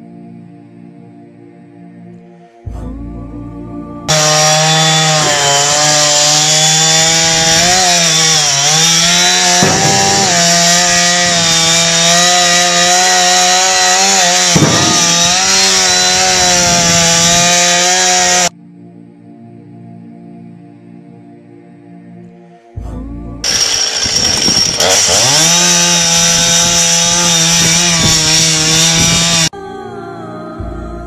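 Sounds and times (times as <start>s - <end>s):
chainsaw cutting wood: 4.1s - 18.5s, 23.4s - 29.5s.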